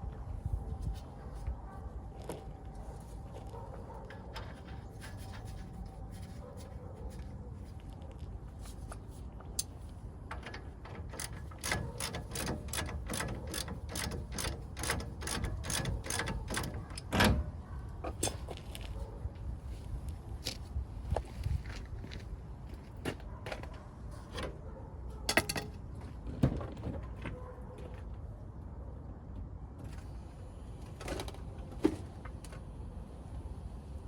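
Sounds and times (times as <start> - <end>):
ratchet wrench clicking: 11.0 - 17.1.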